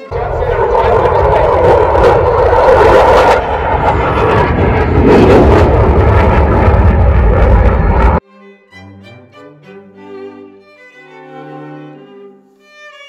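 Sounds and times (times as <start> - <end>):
aircraft engine noise: 0.0 - 8.2.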